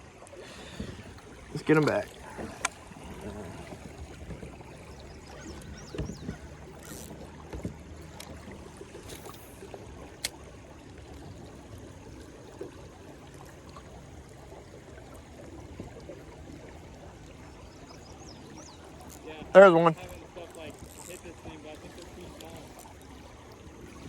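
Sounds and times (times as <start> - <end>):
river water lapping: 0.0 - 24.0
light knocks: 0.7 - 8.4.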